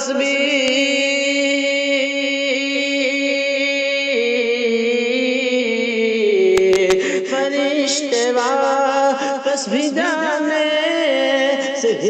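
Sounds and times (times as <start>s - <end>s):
man singing long note: 0.0s - 12.0s.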